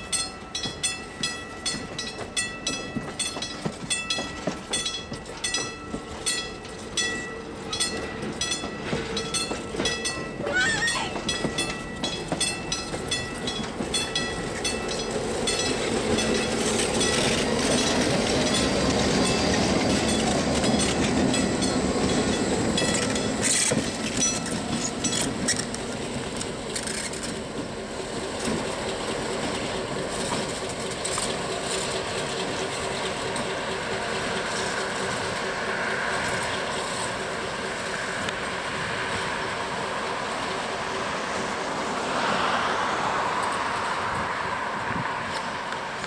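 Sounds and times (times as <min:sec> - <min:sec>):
crossing bell ringing: 0:00.0 - 0:26.7
train wheels clicking over rail joints: 0:00.0 - 0:46.0.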